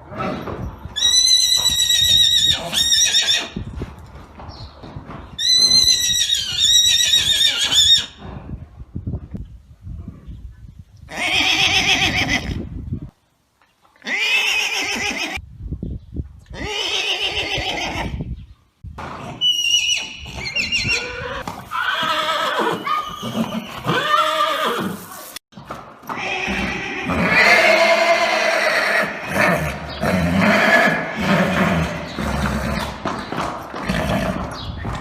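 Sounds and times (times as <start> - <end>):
horses neighing: 19.2 - 25.4, 26.0 - 35.0.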